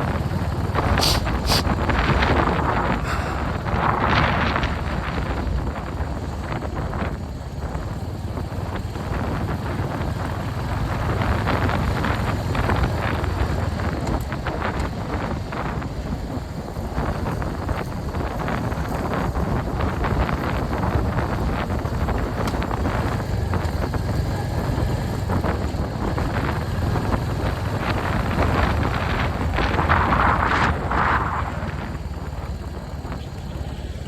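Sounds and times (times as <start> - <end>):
motorcycle engine running: 0.0 - 34.0
wind buffeting on microphone: 0.0 - 34.0.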